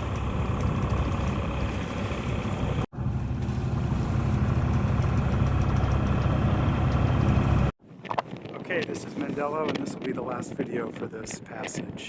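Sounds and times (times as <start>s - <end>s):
boat engine humming: 0.0s - 7.8s
water noise: 0.0s - 8.9s
wind: 0.0s - 12.0s.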